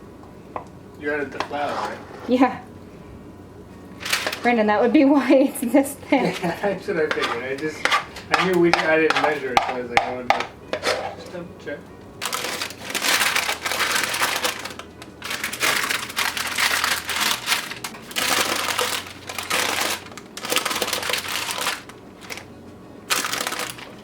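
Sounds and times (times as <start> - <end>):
paper crinkling: 4.0 - 4.6, 12.2 - 22.5, 23.1 - 24.0.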